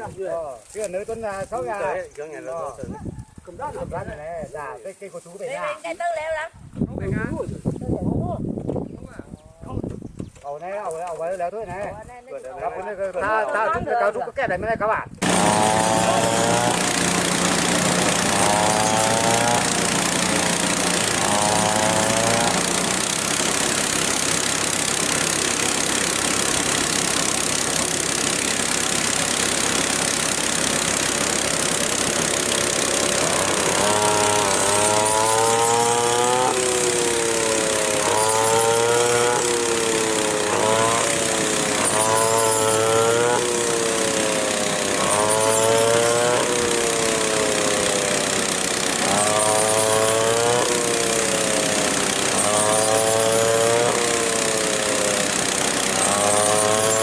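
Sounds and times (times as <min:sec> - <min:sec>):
small engine running: 0:15.2 - 0:57.0.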